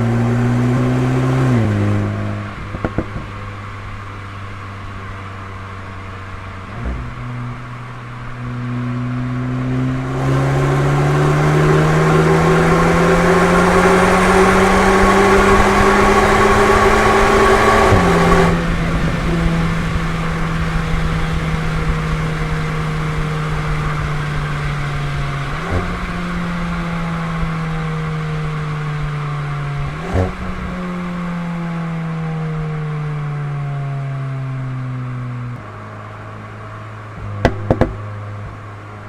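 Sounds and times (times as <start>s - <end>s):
car engine revving: 0.0s - 39.0s
exhaust cracks on downshift: 1.6s - 9.0s, 10.0s - 31.3s, 37.1s - 39.0s.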